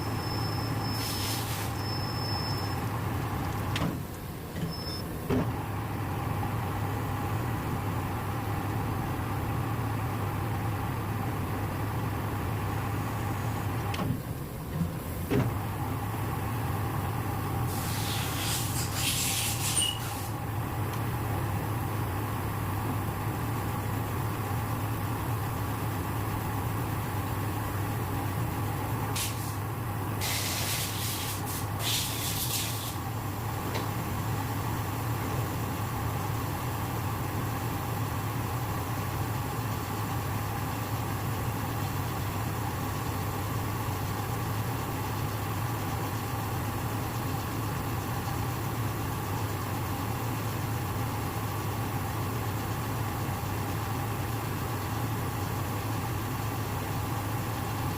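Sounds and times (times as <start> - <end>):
short hissing bursts: 0.9 - 1.8, 17.7 - 20.4, 29.2 - 29.6, 30.2 - 33.0.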